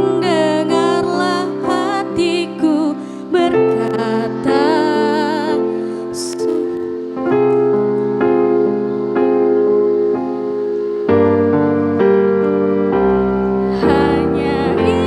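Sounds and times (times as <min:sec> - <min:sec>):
keyboard chords: 0:00.0 - 0:15.0
choir singing: 0:13.0 - 0:15.0.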